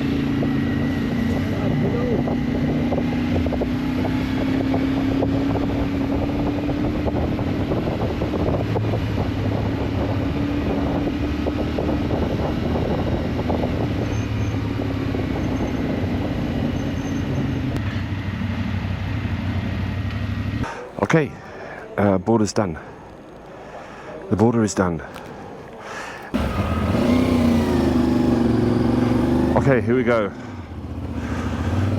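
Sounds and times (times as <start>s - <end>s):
wind buffeting microphone: 0.0s - 16.7s
motorcycle engine running: 26.4s - 31.9s.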